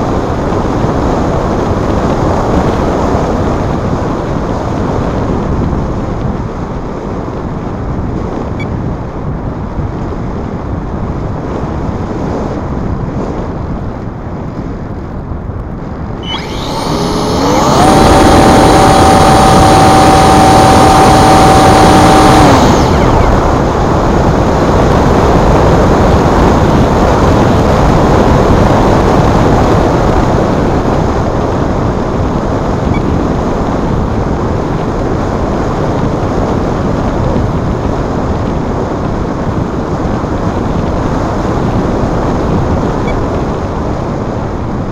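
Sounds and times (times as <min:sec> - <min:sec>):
wind buffeting microphone: 0:00.0 - 0:44.9
electric motor whine: 0:16.2 - 0:24.6.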